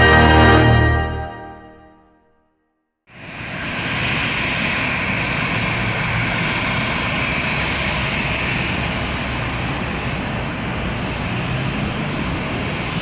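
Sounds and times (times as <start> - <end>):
turboprop engines running: 3.2 - 13.0.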